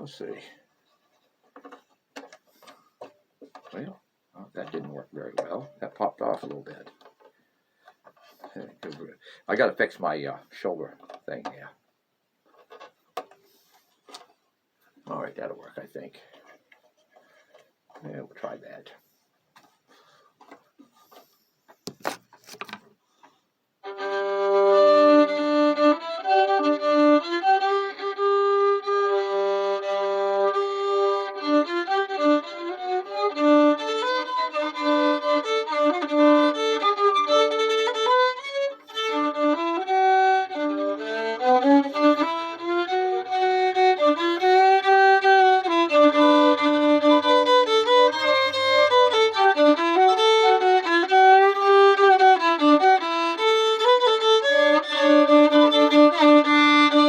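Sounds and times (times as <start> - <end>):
solo fiddle tune: 23.8 - 57.0.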